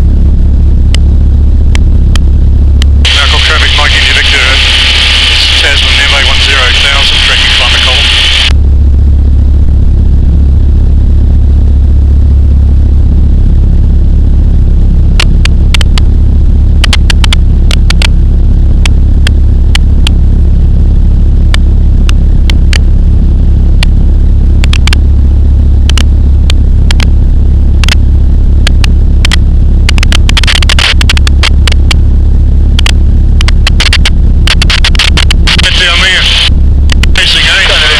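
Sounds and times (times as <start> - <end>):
light aircraft engine droning: 0.0 - 14.2
sharp crackles: 1.7 - 8.5, 27.8 - 32.0, 32.8 - 37.9.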